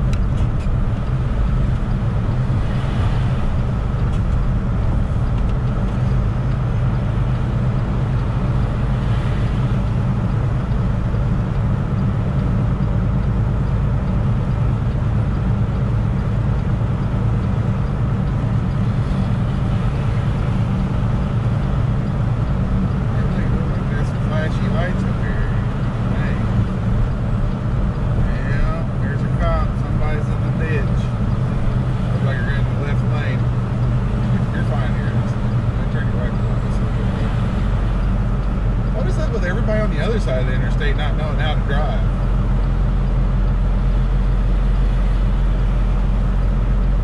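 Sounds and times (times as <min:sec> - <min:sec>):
road noise: 0:00.0 - 0:47.0
truck diesel engine running: 0:00.0 - 0:47.0.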